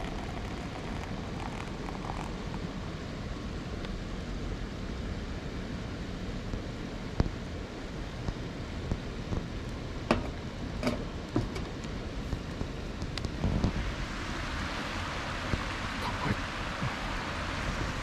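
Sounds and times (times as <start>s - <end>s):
river water rushing: 13.8s - 18.0s.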